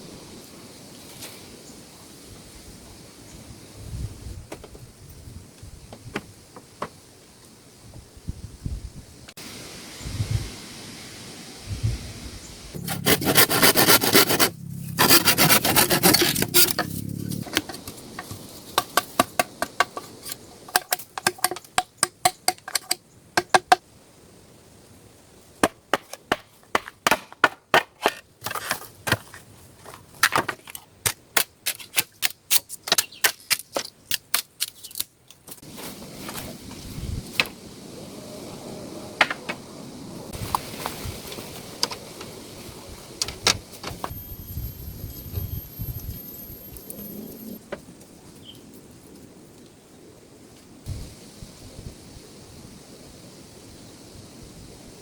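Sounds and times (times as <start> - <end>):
scraping and rustling: 12.8 - 21.8
sharp knocks and cracks: 15.7 - 23.8, 25.6 - 29.3.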